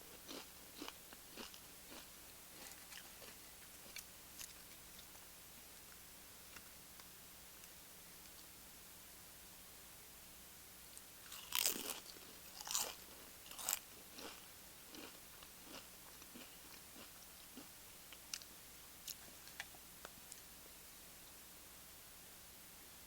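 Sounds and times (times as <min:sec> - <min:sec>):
crunchy bites into chips: 0:00.1 - 0:04.6, 0:11.3 - 0:18.5
chewing: 0:00.2 - 0:05.1, 0:11.3 - 0:17.7.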